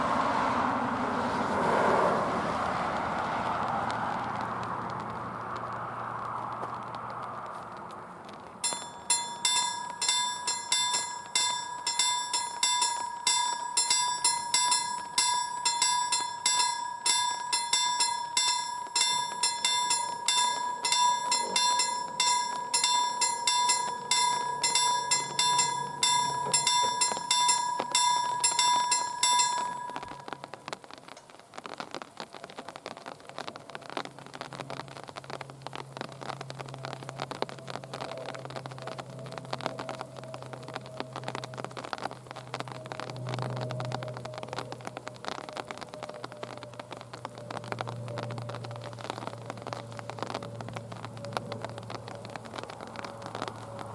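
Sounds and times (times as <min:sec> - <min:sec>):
steady hiss: 0:02.9 - 0:53.9
level crossing warning bell: 0:08.6 - 0:30.7.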